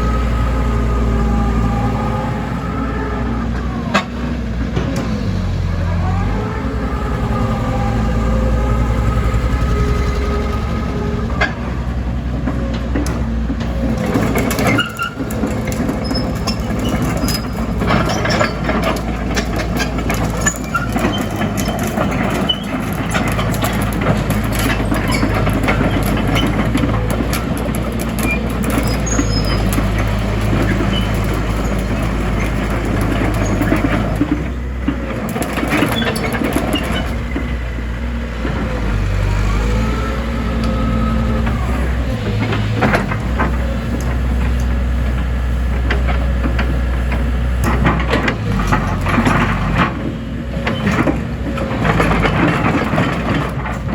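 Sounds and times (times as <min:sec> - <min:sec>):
excavator diesel engine: 0:00.0 - 0:53.9
short squeals: 0:28.2 - 0:34.3.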